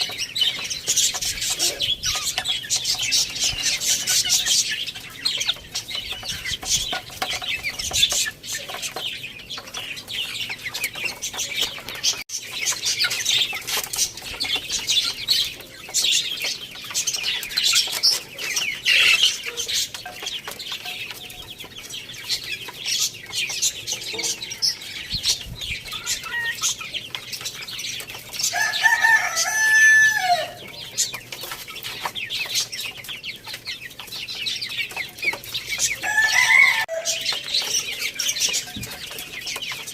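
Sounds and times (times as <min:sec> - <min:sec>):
chickens clucking: 0:00.0 - 0:39.9
small birds chirping: 0:00.0 - 0:39.9
rooster crowing: 0:28.5 - 0:30.6, 0:36.0 - 0:37.3.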